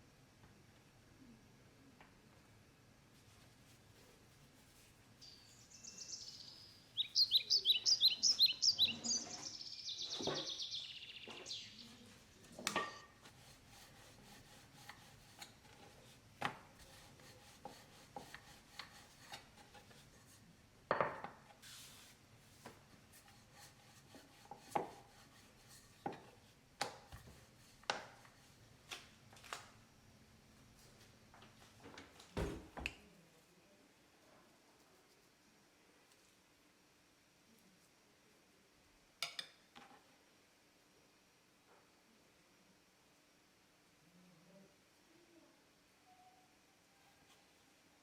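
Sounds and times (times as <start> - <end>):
bird chirping: 5.2 - 12.4.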